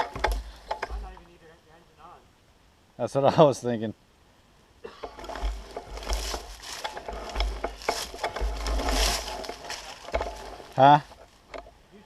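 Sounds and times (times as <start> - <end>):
small clicks and knocks: 0.0 - 1.2, 5.0 - 11.7
rustling and crackling: 0.0 - 1.4, 5.0 - 11.8.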